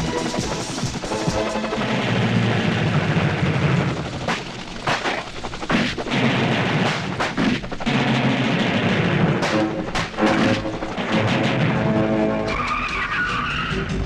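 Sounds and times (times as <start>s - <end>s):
film background score: 0.0s - 14.0s
gunshots: 4.3s - 12.2s.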